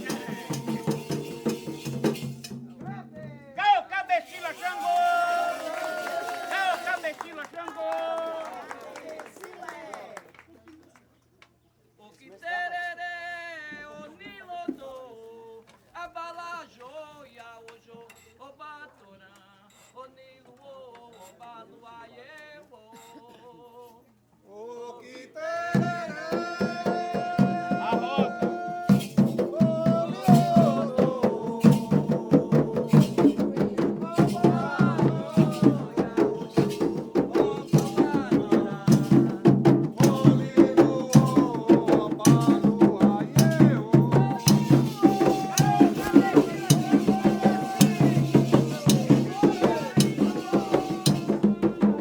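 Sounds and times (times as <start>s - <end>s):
group chanting: 0.0s - 3.1s, 3.7s - 6.5s, 24.5s - 52.0s
hand drums rhythm: 0.0s - 3.6s, 25.8s - 52.0s.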